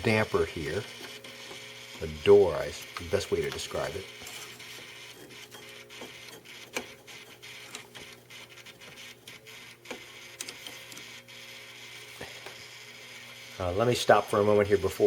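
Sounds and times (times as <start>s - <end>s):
microwave damper motor humming: 0.0s - 15.0s.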